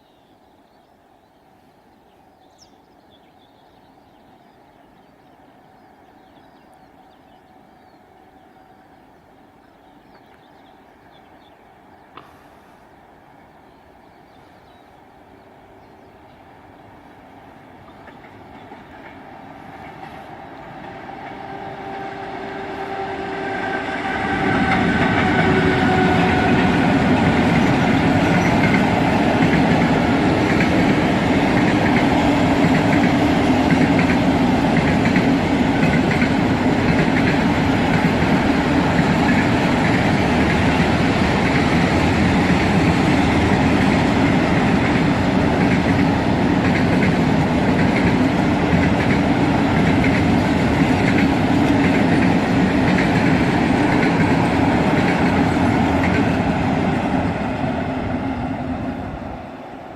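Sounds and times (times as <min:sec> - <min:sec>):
freight train rumble: 0:01.9 - 0:59.9
wagons clattering on track: 0:26.4 - 0:56.5.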